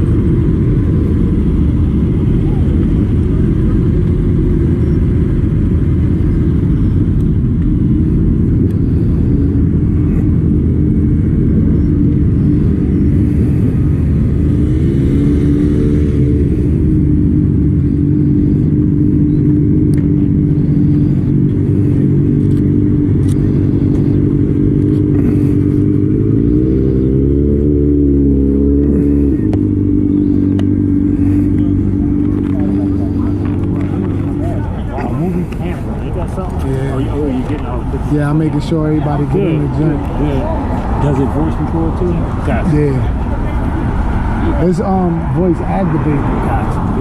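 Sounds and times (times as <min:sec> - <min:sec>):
motorcycle engine running: 0:00.0 - 0:46.2.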